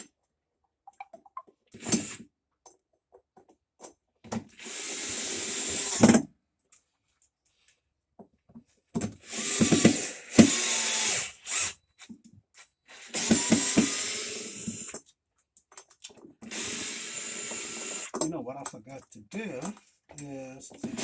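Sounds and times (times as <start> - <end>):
power drill running: 1.8 - 2.2, 4.6 - 6.2, 9.2 - 11.8, 12.9 - 15.0, 16.4 - 18.2, 20.8 - 21.0.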